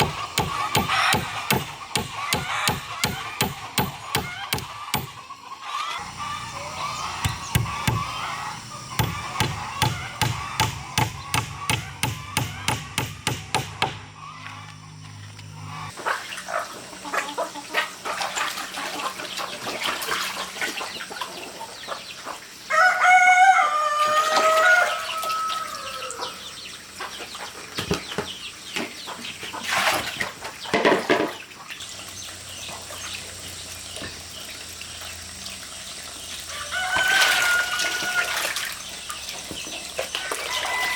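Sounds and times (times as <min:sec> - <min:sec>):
rooster crowing: 0:22.7 - 0:26.5, 0:36.5 - 0:38.6, 0:40.2 - 0:40.9.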